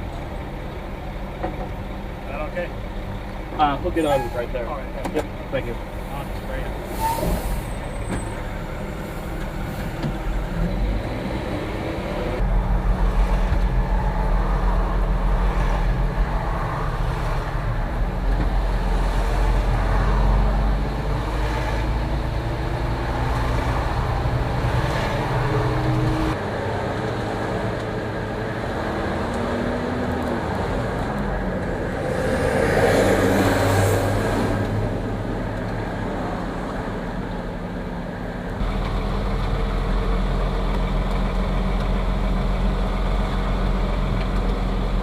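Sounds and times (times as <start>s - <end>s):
truck diesel engine revving: 6.7s - 26.4s.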